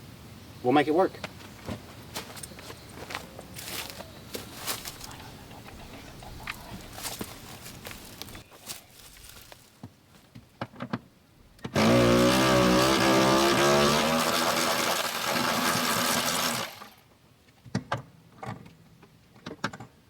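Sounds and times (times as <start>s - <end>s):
handheld power tool running: 11.8s - 17.0s.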